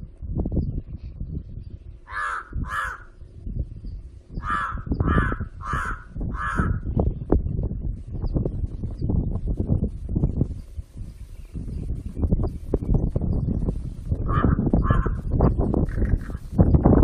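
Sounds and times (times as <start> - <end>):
low rumbling noise: 0.0 - 17.0
crow cawing: 2.1 - 3.2, 4.4 - 6.9, 14.3 - 15.2.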